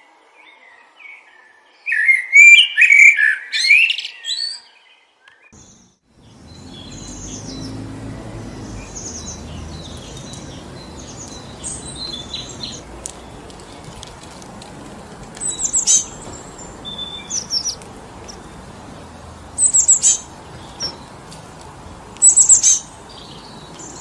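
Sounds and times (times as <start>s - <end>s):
songbird chirping: 0.0s - 24.0s
wind through trees: 0.0s - 24.0s
distant birds chirping: 5.6s - 24.0s.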